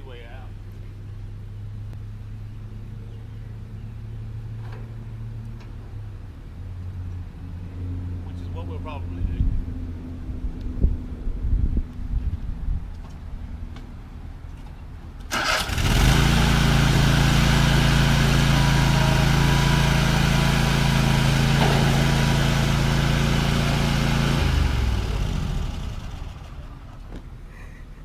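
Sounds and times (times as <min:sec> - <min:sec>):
vehicle engine starting and running: 0:15.1 - 0:27.5.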